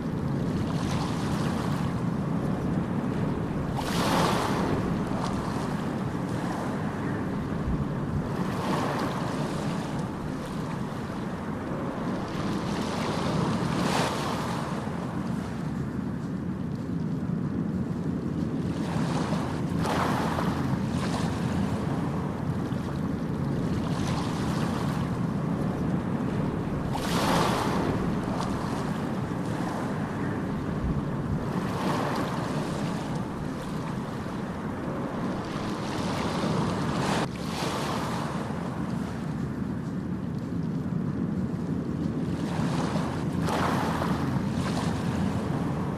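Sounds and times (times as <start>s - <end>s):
ocean waves washing in: 0.0s - 45.9s
wind noise on microphone: 0.0s - 45.9s.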